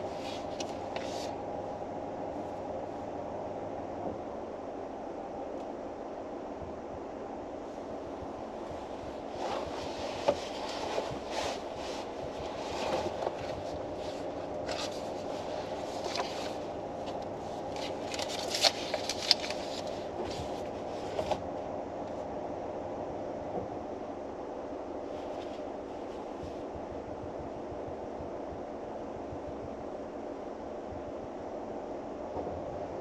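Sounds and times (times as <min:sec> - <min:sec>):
paper rustling: 0:00.0 - 0:01.4, 0:09.3 - 0:21.4
light ticks from book handling: 0:00.2 - 0:01.3, 0:12.4 - 0:21.4
car cabin hum: 0:07.7 - 0:21.4.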